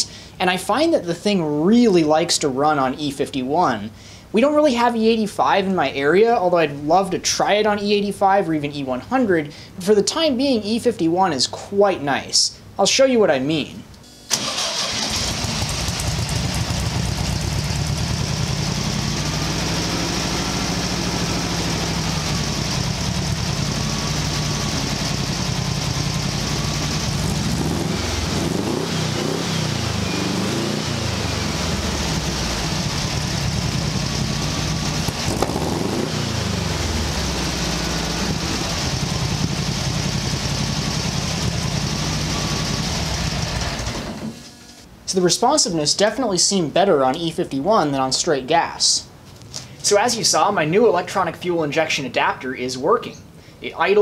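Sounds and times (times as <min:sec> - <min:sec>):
car engine idling and revving: 0:14.8 - 0:44.3.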